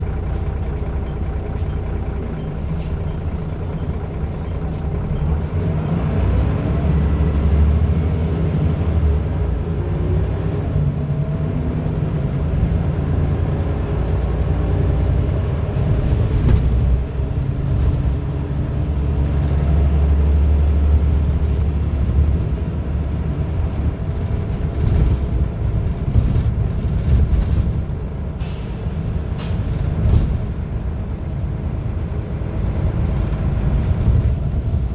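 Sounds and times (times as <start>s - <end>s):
bus diesel engine running: 0.0s - 34.9s
air brake hiss: 28.4s - 29.8s.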